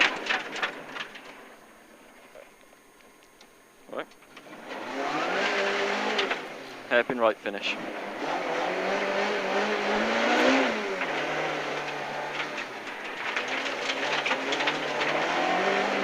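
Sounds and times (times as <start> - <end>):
rattles and clicks: 0.0 - 8.2, 9.0 - 16.0
rally car engine revving: 4.4 - 16.0.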